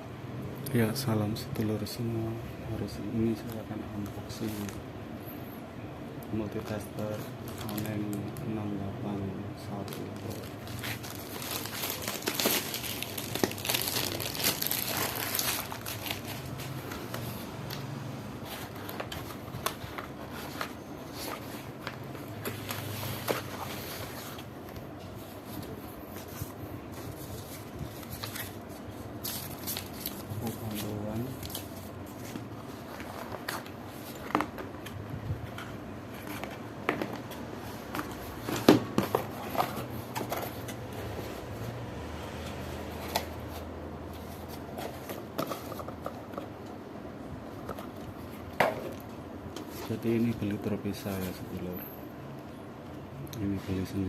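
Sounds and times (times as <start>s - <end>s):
packaging crinkling and rustling: 6.5s - 41.6s.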